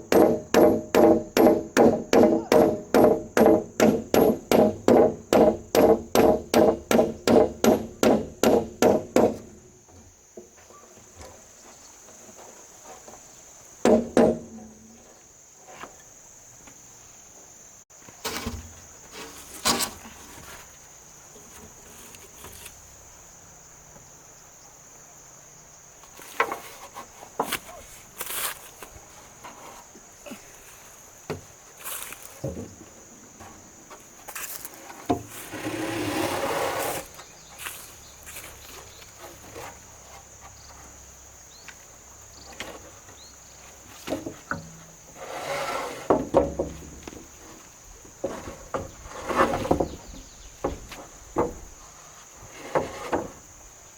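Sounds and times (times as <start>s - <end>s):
high insect drone: 0.0s - 53.9s
wooden knocks and clatter: 26.0s - 27.8s, 31.2s - 35.7s, 44.0s - 45.0s, 46.0s - 53.5s.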